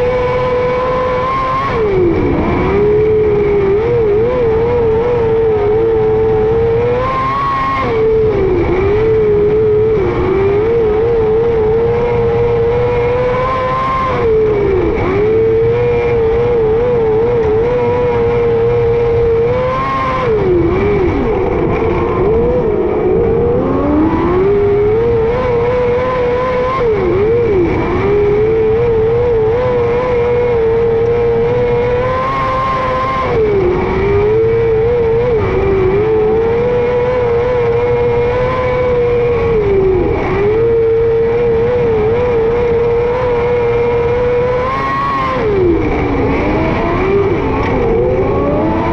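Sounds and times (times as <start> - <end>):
racing car engine at high revs: 0.0 - 48.9.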